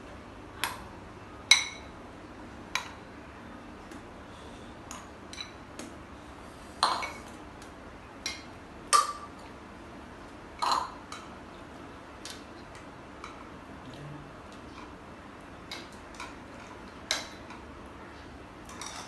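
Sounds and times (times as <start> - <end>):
tableware clinking: 6.8 - 7.3, 10.6 - 11.0, 18.6 - 19.0.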